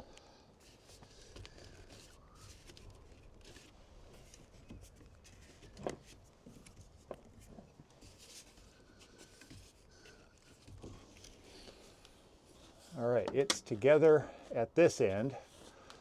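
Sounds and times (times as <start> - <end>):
faint scraping and handling: 0.6 - 16.0
small knocks and clicks: 13.2 - 13.7.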